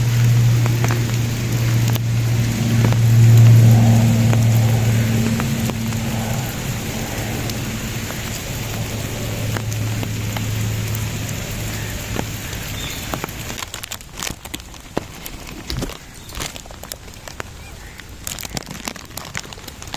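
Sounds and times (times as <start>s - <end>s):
low steady hum: 0.0s - 14.8s
steady rain falling: 0.0s - 19.9s
water drips and taps: 0.0s - 19.9s.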